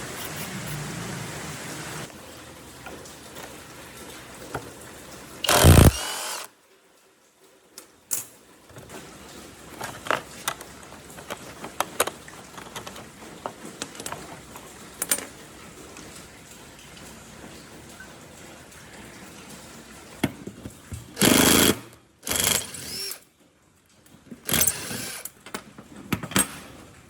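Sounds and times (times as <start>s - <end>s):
loud burst of noise: 5.4s - 6.5s
small parts clicking and tapping: 5.4s - 6.5s, 9.7s - 15.4s, 24.0s - 26.5s.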